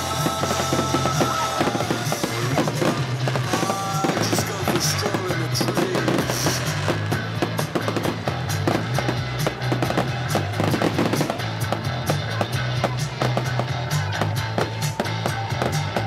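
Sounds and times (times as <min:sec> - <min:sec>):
fireworks banging and crackling: 0:00.0 - 0:16.0
music with bass line: 0:00.0 - 0:16.0.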